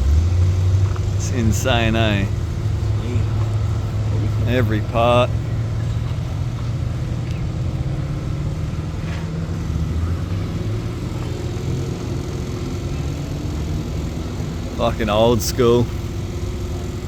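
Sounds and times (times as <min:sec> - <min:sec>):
large engine idling: 0:00.0 - 0:17.0.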